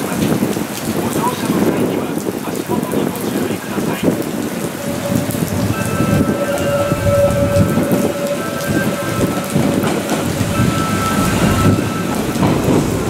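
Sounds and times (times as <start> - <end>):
rain hissing: 0.0 - 13.0
spray from wet rails: 0.0 - 13.0
train rumbling: 3.5 - 13.0
steady whine: 4.8 - 13.0.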